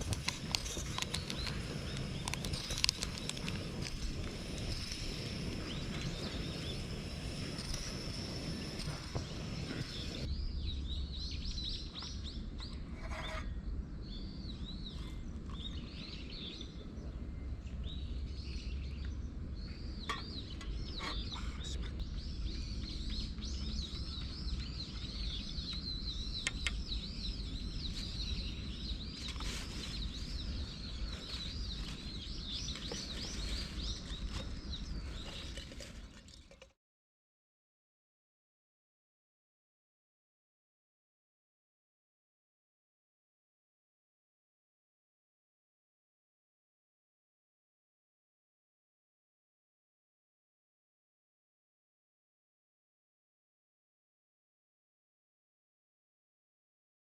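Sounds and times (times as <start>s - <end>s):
steady low rumble: 0.0s - 35.5s
small birds chirping: 0.0s - 36.1s.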